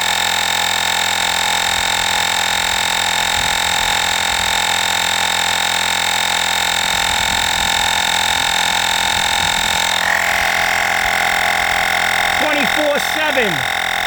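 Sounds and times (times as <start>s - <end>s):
air compressor humming: 3.4s - 14.0s.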